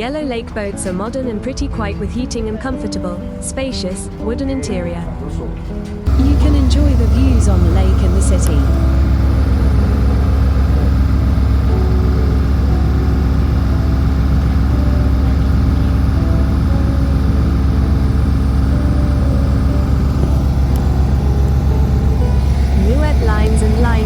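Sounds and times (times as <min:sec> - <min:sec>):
boat engine droning: 0:06.0 - 0:24.0.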